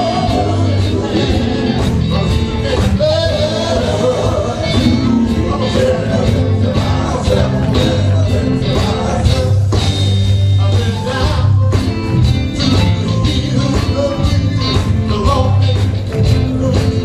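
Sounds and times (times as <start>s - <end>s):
person singing: 0.0s - 9.8s
gospel band playing: 0.0s - 17.0s.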